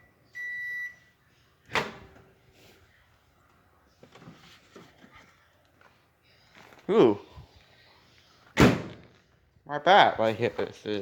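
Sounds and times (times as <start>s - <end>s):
microwave beep: 0.0s - 1.1s.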